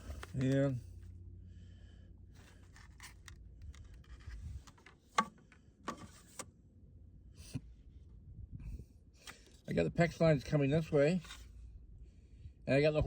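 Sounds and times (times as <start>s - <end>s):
rustling and handling noise: 0.0s - 1.2s, 2.3s - 6.4s.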